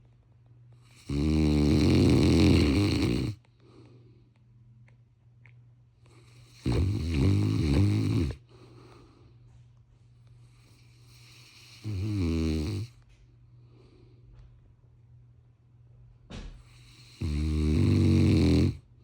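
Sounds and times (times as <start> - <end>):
dog snoring: 0.8 - 3.4, 6.1 - 9.0, 10.5 - 13.0, 16.6 - 18.9.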